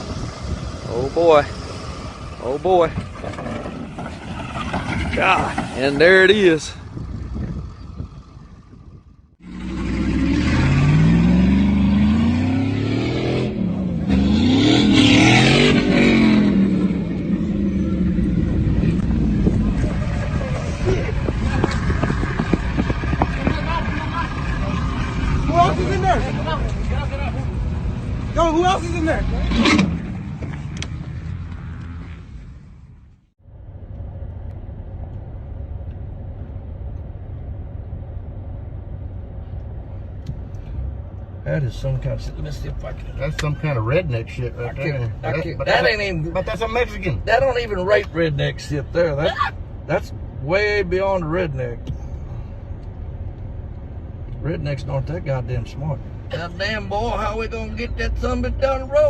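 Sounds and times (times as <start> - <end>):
vehicle engine revving: 0.0 - 33.1.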